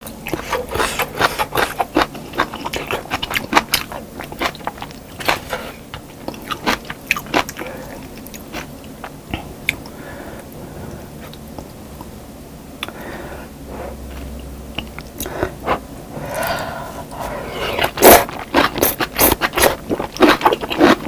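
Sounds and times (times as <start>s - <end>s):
crunchy biting and chewing: 0.2s - 9.8s, 14.2s - 21.0s.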